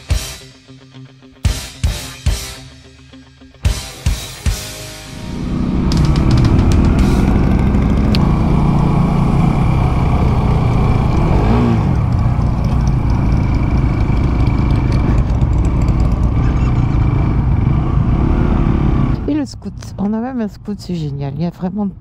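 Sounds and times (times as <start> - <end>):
road and wind noise: 5.1 - 22.0
motorcycle engine running: 5.2 - 19.6.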